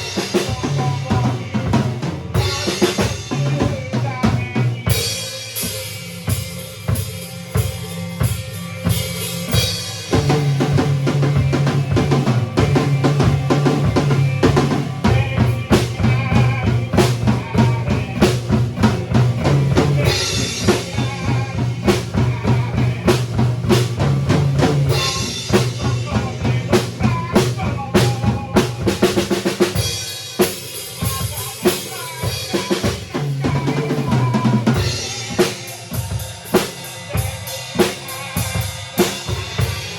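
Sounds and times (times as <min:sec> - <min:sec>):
band playing instrumental: 0:00.0 - 0:39.9
drum kit with rimshots: 0:00.0 - 0:39.9
steady bass line: 0:06.4 - 0:29.1.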